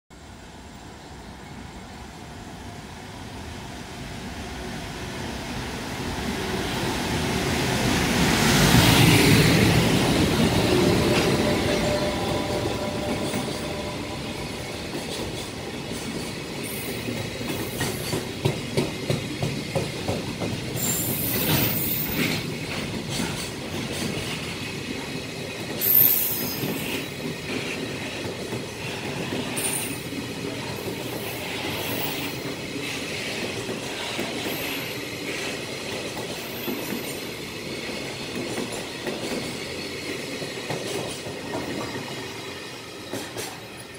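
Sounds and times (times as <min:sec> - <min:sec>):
electric locomotive passing: 0:00.2 - 0:43.9.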